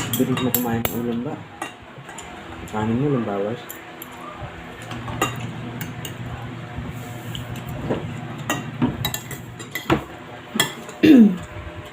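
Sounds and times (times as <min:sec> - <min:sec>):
cutlery clinking on dishes: 0:00.0 - 0:02.4, 0:08.4 - 0:11.0.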